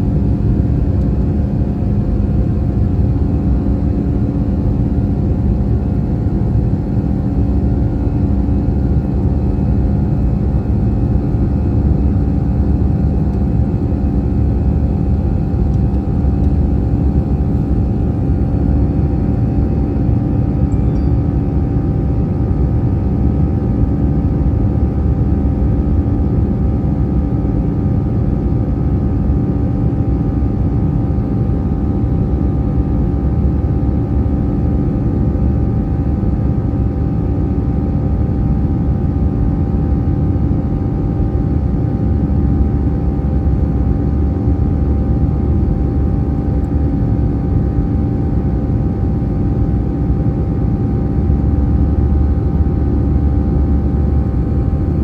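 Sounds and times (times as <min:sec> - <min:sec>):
steady humming tones: 0:00.0 - 0:24.4
jet engines low rumble: 0:00.0 - 0:55.0.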